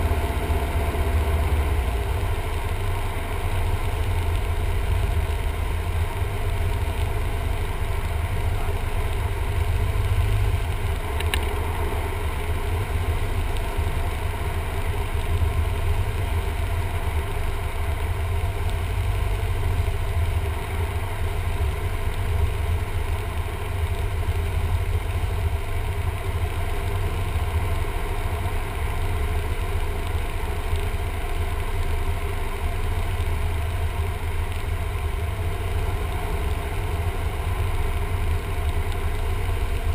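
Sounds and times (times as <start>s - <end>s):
propeller plane engine droning: 0.0s - 39.9s
faint click: 11.2s - 11.6s.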